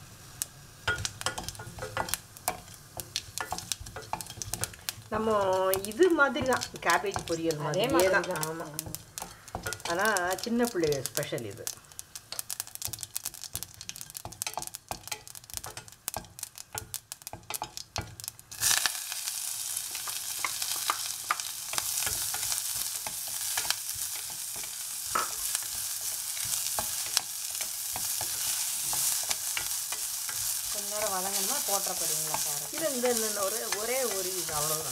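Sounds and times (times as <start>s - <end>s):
onions sizzling in oil: 0.0s - 34.9s
seeds crackling in hot oil: 0.0s - 34.9s.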